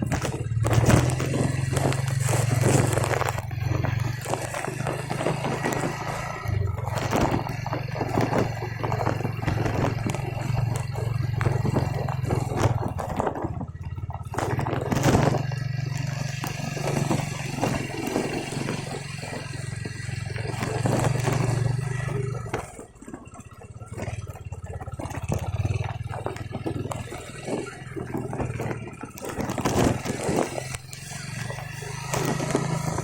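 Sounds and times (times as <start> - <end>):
engine running: 0.0 - 33.0.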